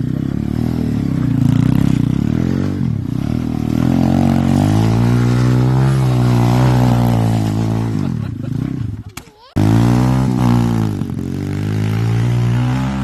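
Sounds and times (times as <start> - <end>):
pit bike engine revving: 0.0 - 13.0.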